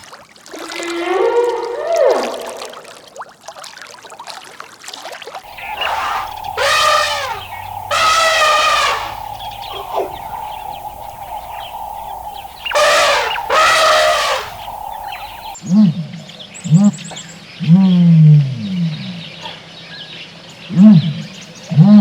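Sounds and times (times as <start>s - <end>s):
drawn-out animal cries: 5.5s - 15.6s
steady tone: 5.5s - 15.6s.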